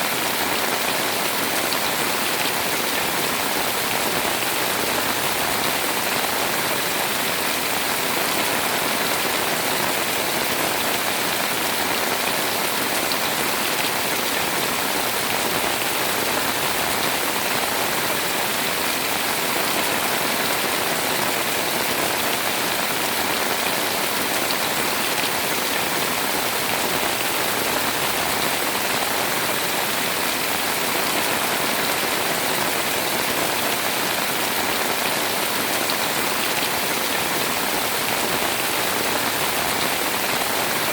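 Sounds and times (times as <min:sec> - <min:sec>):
heavy rain on a house: 0:00.0 - 0:40.9.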